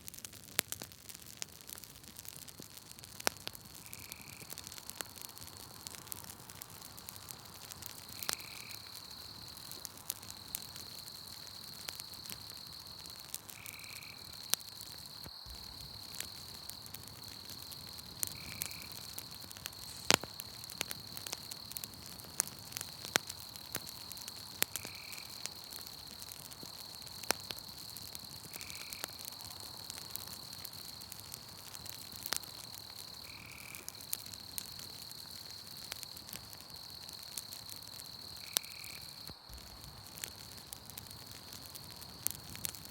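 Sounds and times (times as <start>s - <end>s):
campfire crackling and popping: 0.0s - 42.9s
high-pitched insect trill: 8.0s - 21.9s, 31.8s - 40.4s.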